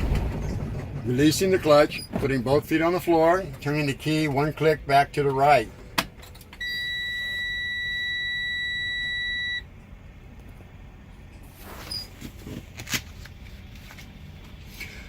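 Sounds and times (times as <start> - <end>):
dashboard warning buzzer: 6.6 - 9.6.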